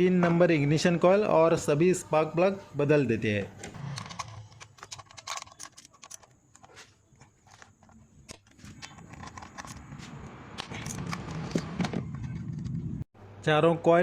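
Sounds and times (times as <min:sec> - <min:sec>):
ignition coils clicking and knocking: 0:03.9 - 0:12.8.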